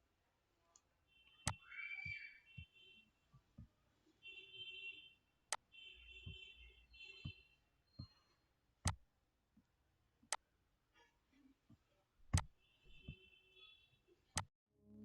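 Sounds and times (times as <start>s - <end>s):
sharp clicks: 12.4s - 13.1s.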